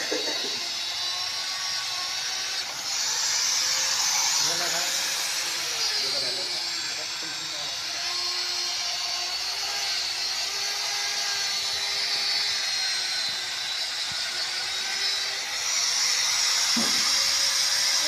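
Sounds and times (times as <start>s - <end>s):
small power tool whirring: 0.0s - 18.0s.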